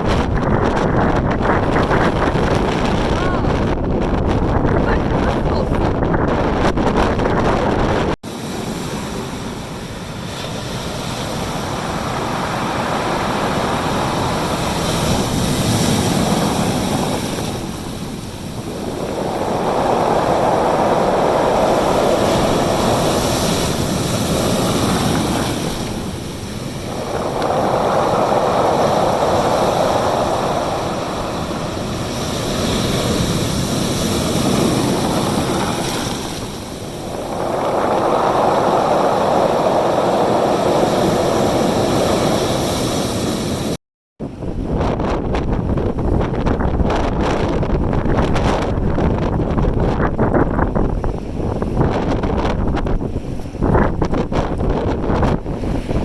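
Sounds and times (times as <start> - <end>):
sea surf: 0.0 - 50.0, 50.6 - 56.0
strong wind: 0.0 - 56.0.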